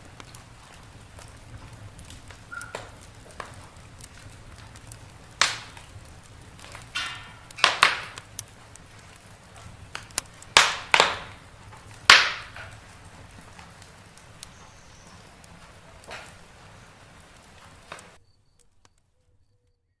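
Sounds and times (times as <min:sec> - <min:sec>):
loud pops of fire: 0:00.0 - 0:18.2
wood fire crackling: 0:00.0 - 0:19.4
low rustle of flame: 0:00.0 - 0:19.8.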